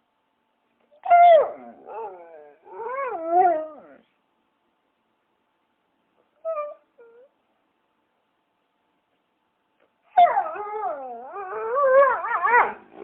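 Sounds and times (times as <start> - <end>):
dog whining: 1.0 - 4.1, 6.4 - 7.3, 10.1 - 13.0.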